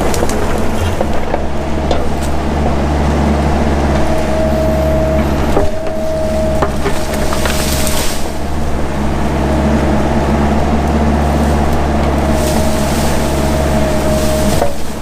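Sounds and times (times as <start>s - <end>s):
excavator diesel engine running: 0.0s - 15.0s
thin whine: 3.2s - 15.0s.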